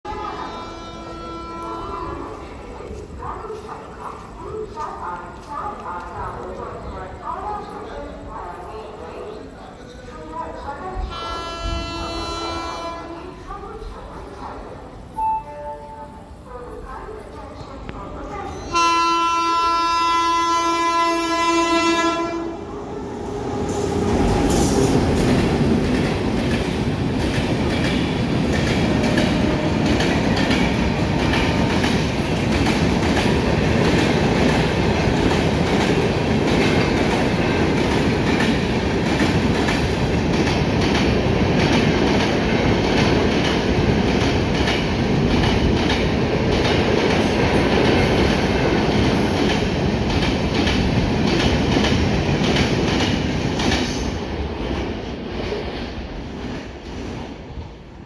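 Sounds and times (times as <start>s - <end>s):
train passing at speed: 0.1s - 58.0s
locomotive horn blowing: 18.7s - 22.6s.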